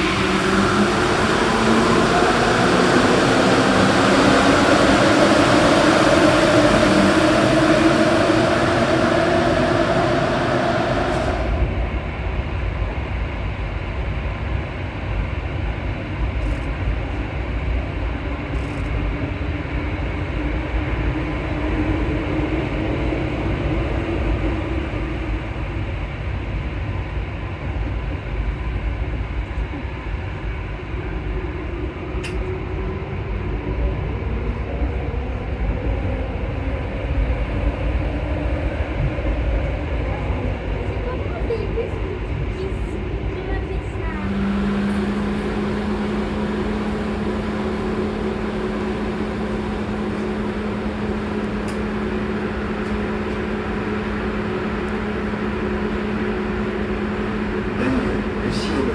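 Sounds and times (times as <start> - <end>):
metro train rumble: 0.0 - 58.9.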